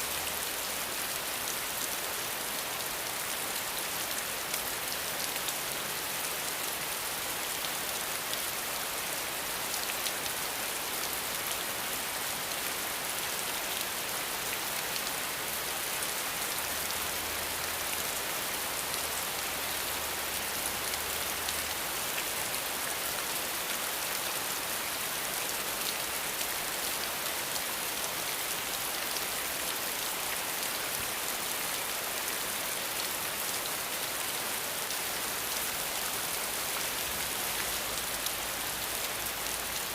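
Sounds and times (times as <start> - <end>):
rain pattering: 34.8 - 39.9.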